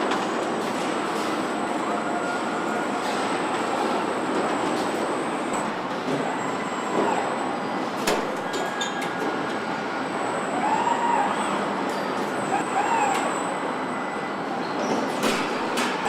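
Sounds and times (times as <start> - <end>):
industrial machinery din: 15.2 - 16.0.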